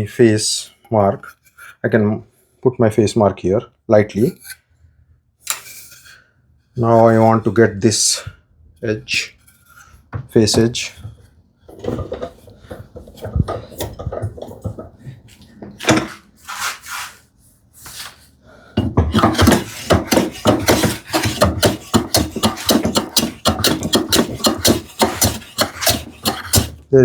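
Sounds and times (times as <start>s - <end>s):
hand plane strokes on wood: 15.8s - 17.2s, 19.1s - 26.8s
knocks on wood: 18.8s - 26.8s.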